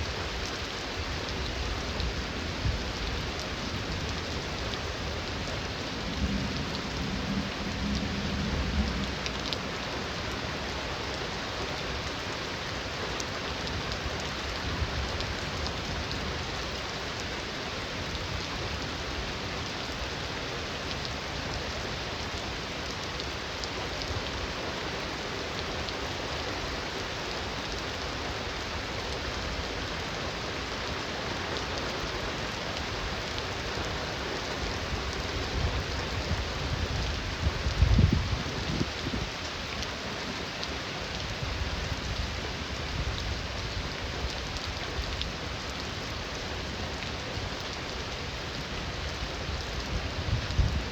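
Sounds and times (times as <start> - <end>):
heavy rain: 0.0 - 50.9
distant thunder rumble: 6.0 - 10.0.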